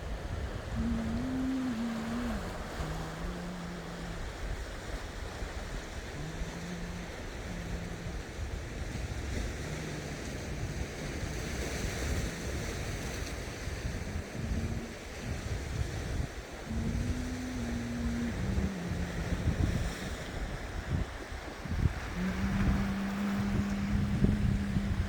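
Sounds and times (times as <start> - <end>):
sea waves washing onto rocks: 0.0 - 25.0
wind on microphone: 0.0 - 25.0
brief low hums: 0.7 - 4.8, 21.0 - 25.0.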